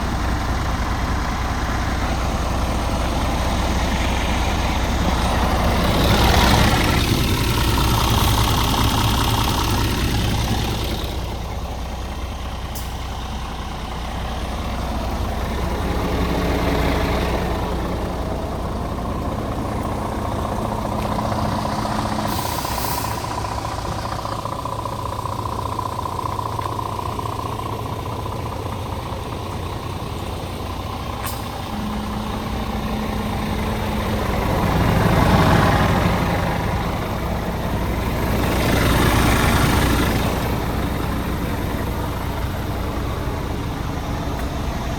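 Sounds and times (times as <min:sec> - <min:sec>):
diesel truck engine idling: 0:00.0 - 0:44.9
compressed air hiss: 0:22.3 - 0:23.3.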